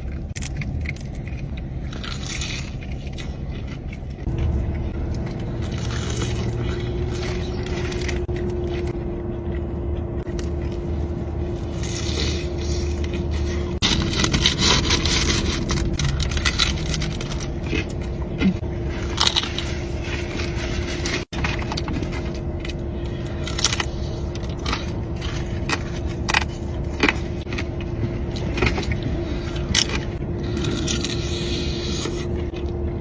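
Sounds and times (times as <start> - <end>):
crunchy chewing: 0.0 - 33.0
low hum: 0.0 - 33.0
food wrappers crinkling: 10.2 - 32.4.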